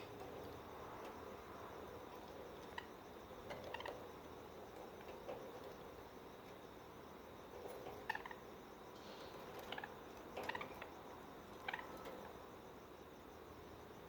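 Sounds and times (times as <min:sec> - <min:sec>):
faint hiss: 0:08.0 - 0:10.6.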